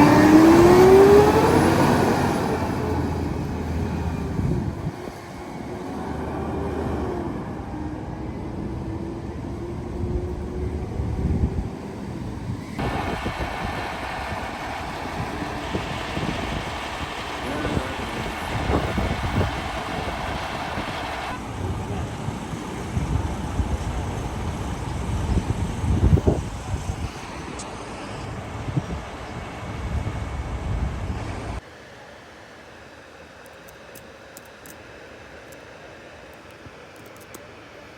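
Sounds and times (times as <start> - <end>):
garbage truck engine rumble: 0.0 - 27.6.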